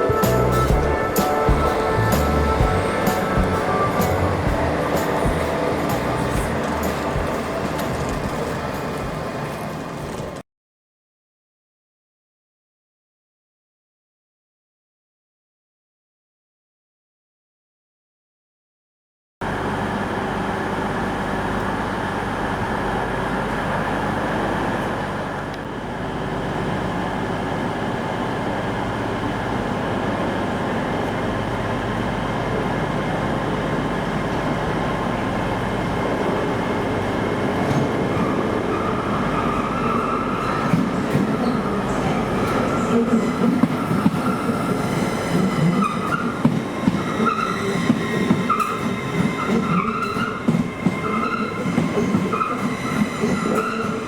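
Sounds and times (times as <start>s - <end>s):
train engine humming: 0.0s - 10.4s, 19.4s - 54.0s
high squeal: 38.3s - 46.4s.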